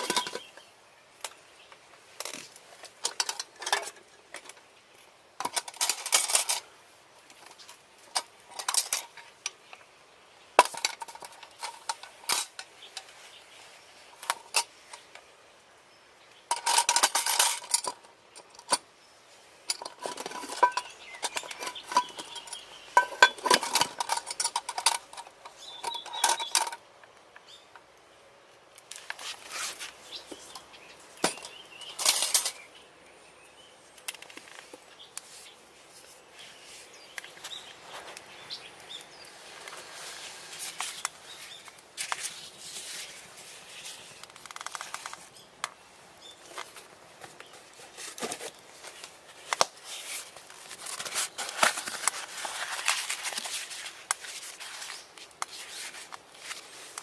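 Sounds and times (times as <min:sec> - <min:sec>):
utensils clinking against metal pots: 0:00.0 - 0:00.5, 0:02.2 - 0:04.0, 0:05.4 - 0:06.6, 0:10.6 - 0:13.1, 0:16.5 - 0:18.8, 0:19.7 - 0:26.8, 0:31.2 - 0:32.6.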